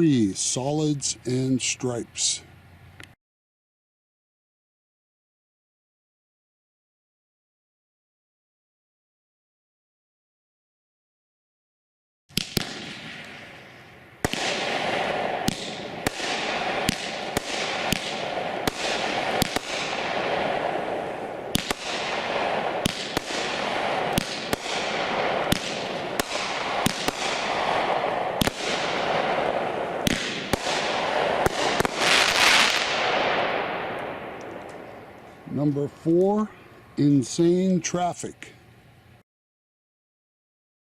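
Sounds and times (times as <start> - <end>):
fireworks cake firing sharp shots: 12.3 - 35.0.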